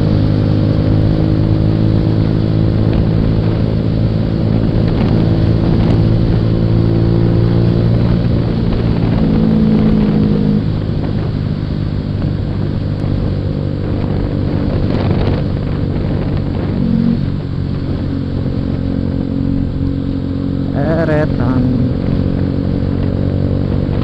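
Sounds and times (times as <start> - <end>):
motorcycle engine cruising: 0.0 - 24.0
road and wind noise: 0.0 - 24.0.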